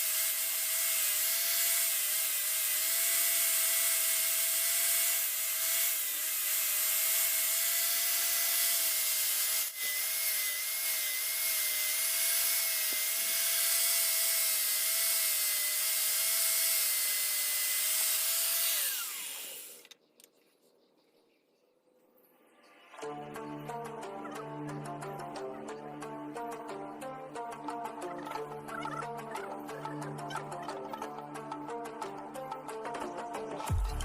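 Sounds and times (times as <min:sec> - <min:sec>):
power tool motor whining: 0:00.0 - 0:20.0.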